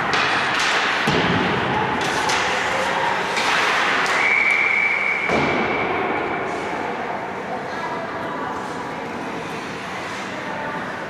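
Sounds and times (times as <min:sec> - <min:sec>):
sticks and puck knocking: 0:00.0 - 0:01.4.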